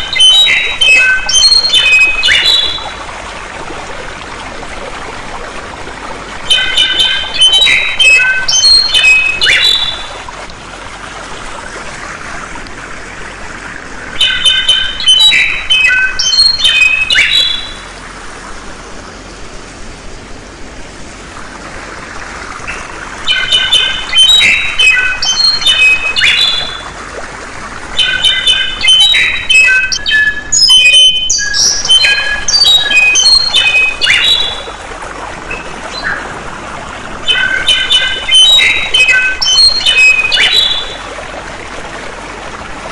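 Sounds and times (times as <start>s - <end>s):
songbird singing: 0.0s - 3.0s, 6.5s - 10.2s, 14.2s - 18.0s, 22.7s - 26.9s, 28.0s - 34.8s, 35.5s - 36.3s, 37.2s - 41.1s
flowing water: 0.0s - 42.9s.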